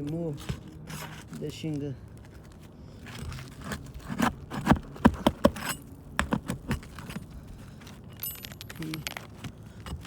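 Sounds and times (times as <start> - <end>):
hand tool knocking on roof shingles: 4.1 - 7.2.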